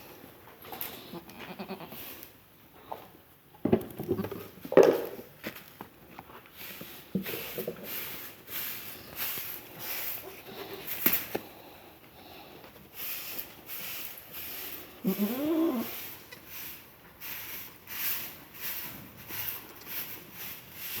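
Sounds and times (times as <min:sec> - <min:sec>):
goat kid bleating: 0:01.0 - 0:02.1, 0:15.0 - 0:16.5.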